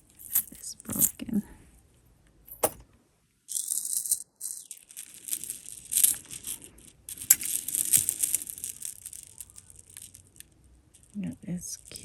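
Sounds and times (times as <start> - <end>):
jewelry clinking and rattling: 0.0 - 1.5, 2.5 - 2.8, 3.5 - 12.0
crinkly rustling: 4.6 - 11.2.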